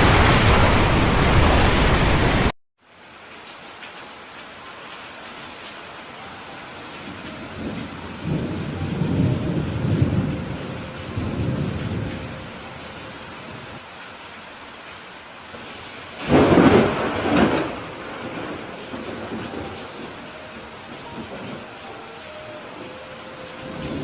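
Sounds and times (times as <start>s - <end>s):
rolling thunder rumble: 0.0s - 2.5s, 7.6s - 12.5s, 16.2s - 21.7s
sharp thunderclap: 0.0s - 2.5s, 16.2s - 20.1s
rain falling: 0.0s - 24.0s.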